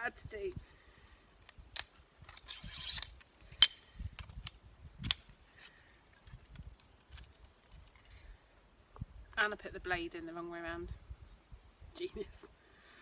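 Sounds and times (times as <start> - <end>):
metal clicks of saw assembly: 1.5 - 4.5
saw blade scraping: 2.3 - 3.9.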